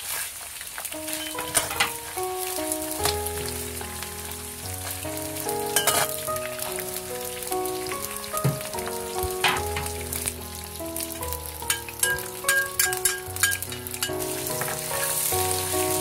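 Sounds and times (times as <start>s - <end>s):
meat sizzling in hot oil: 0.0s - 16.0s
background music: 1.0s - 16.0s
metal spatula clattering: 1.1s - 2.0s, 11.7s - 15.1s.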